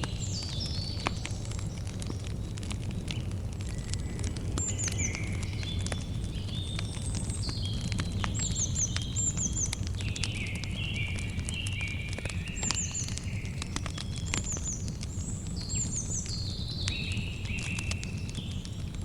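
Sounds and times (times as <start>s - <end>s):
campfire crackling and popping: 0.0s - 19.0s
birds whistling: 3.8s - 14.9s.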